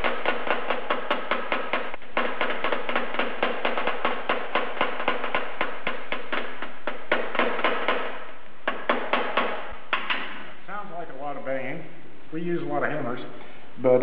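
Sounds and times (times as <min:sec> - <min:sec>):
hammer tapping metal: 0:00.0 - 0:10.4.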